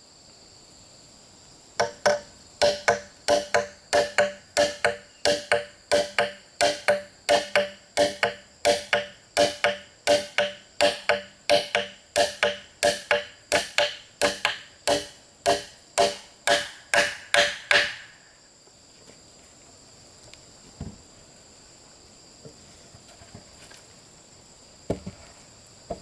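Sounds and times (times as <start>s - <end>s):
insects buzzing: 0.0s - 26.0s
bamboo being chopped: 1.8s - 18.2s.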